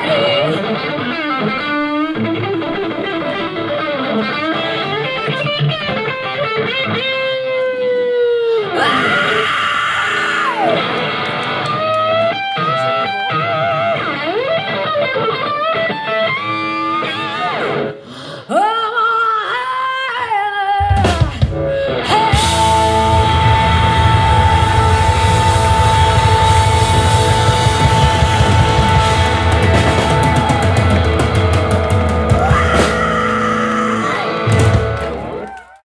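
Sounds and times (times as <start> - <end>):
electric guitar lead lines: 0.0 - 18.4, 20.1 - 35.6
live rock band: 0.0 - 19.2, 19.9 - 35.8.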